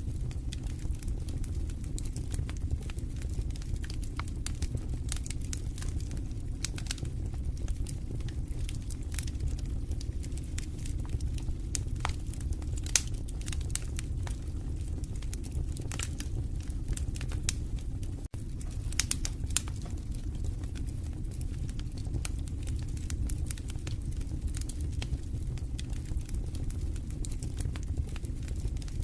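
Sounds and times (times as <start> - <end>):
fire burning with crackles: 0.0 - 29.0
sharp pops of fire: 15.1 - 26.4.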